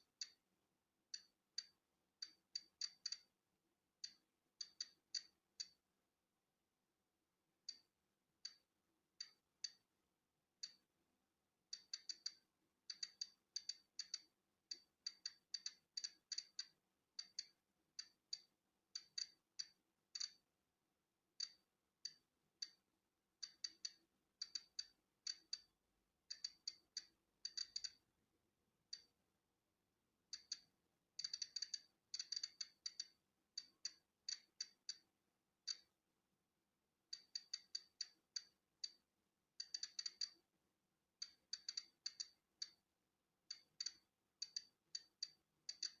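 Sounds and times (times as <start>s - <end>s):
geiger counter clicking: 1.2s - 3.3s, 4.0s - 5.8s, 7.7s - 8.6s, 10.6s - 10.8s, 11.8s - 20.4s, 23.4s - 25.7s, 26.3s - 28.0s, 28.9s - 29.1s, 30.3s - 35.9s, 37.1s - 39.0s, 39.6s - 40.4s, 41.2s - 42.8s, 43.5s - 46.0s.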